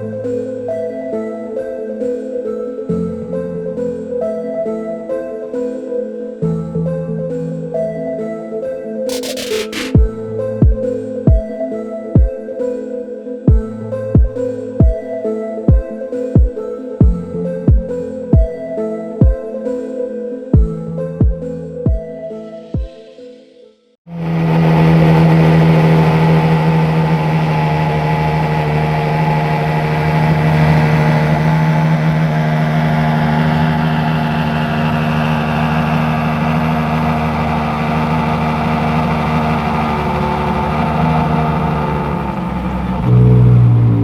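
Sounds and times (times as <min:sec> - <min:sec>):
car engine running steadily: 0:09.1 - 0:10.8, 0:24.1 - 0:44.0.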